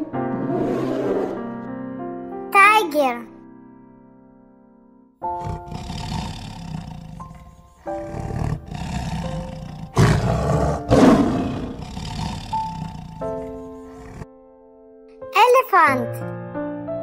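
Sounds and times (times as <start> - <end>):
tiger roaring and growling: 0.0 - 1.6, 5.2 - 14.3.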